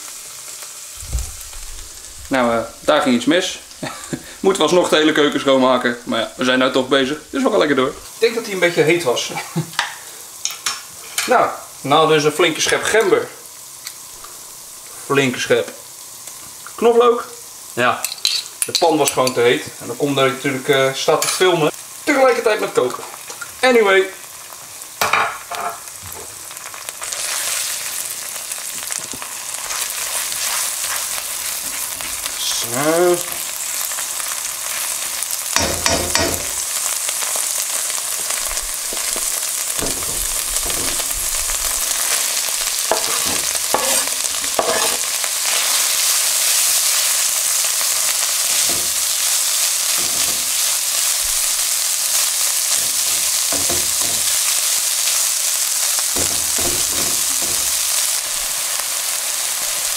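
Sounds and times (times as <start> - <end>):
garlic sizzling in hot oil: 0.0 - 59.9
spatula knocking and scraping pan: 35.6 - 36.6, 38.9 - 41.4, 42.8 - 45.1, 48.5 - 49.3, 49.9 - 50.6, 52.7 - 54.5, 56.1 - 58.0.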